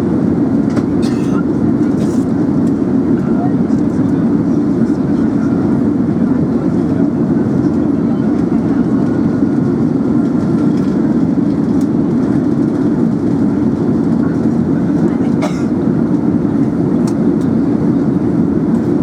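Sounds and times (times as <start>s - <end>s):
airplane cabin engine hum: 0.0s - 19.0s.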